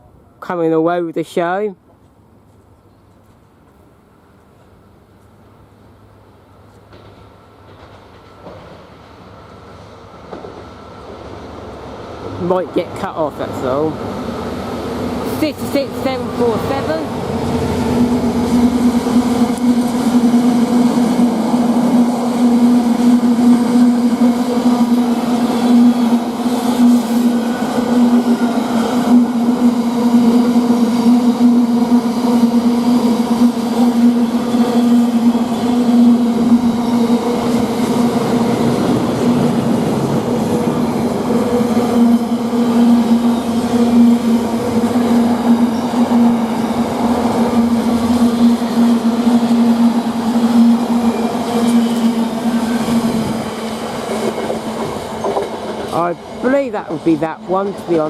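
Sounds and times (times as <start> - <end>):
locomotive low hum: 12.2 - 58.0.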